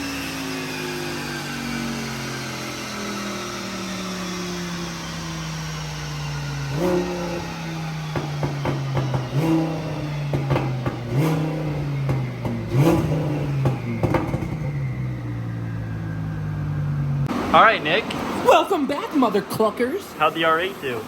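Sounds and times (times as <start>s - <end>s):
car engine revs dropping: 0.0s - 19.0s
background music with bass and drums: 6.6s - 15.2s.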